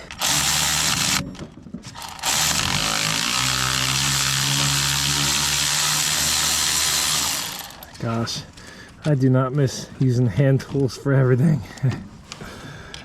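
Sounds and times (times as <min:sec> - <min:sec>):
cordless power tool whining: 0:00.0 - 0:08.1.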